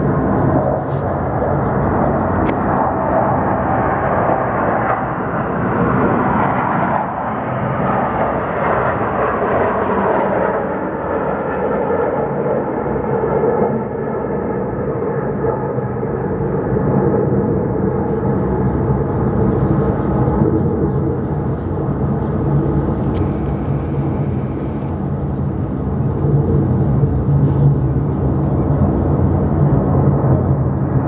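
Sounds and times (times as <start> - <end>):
engine drone: 0.0 - 3.9, 18.2 - 30.9.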